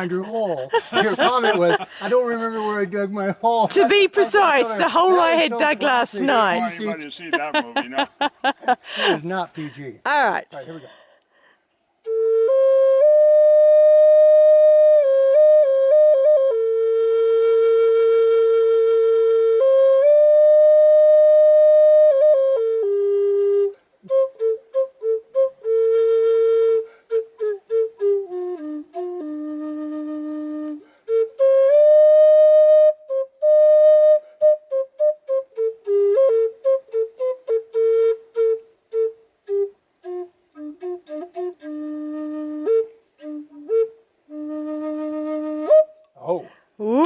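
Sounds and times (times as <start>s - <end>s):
solo flute melody: 12.0s - 46.3s.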